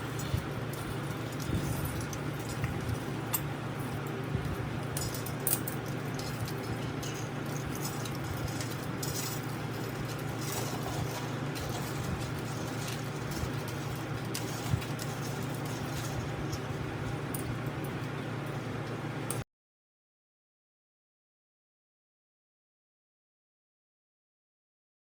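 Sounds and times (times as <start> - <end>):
low steady hum: 0.0 - 19.4
small hard objects clinking: 4.8 - 17.5.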